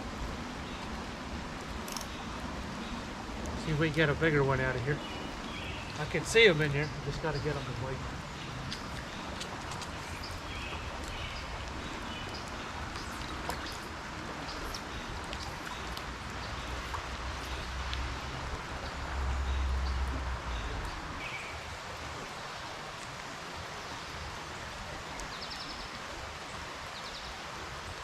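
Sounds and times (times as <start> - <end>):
creek water flowing: 0.0 - 28.0
rain hissing: 0.0 - 28.0
small drips ticking: 1.6 - 21.3.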